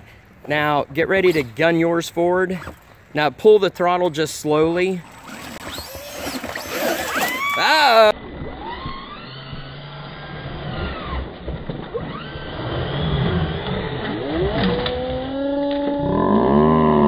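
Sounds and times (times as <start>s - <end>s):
wheels spinning in mud: 3.8s - 17.0s
electric motors whining: 4.6s - 16.4s.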